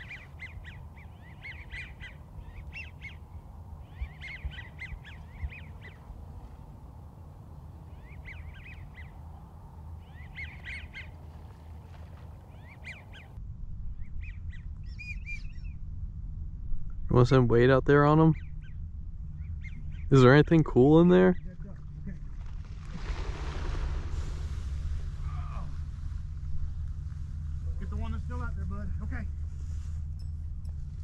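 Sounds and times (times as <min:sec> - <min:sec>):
low rumble: 0:13.3 - 0:31.0.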